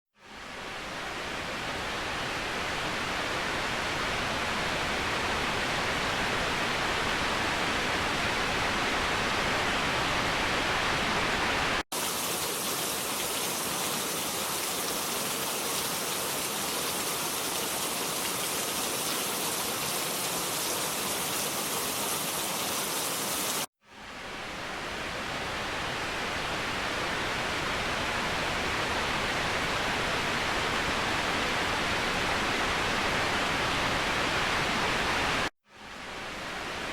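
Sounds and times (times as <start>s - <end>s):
waterfall rushing: 9.3s - 23.7s.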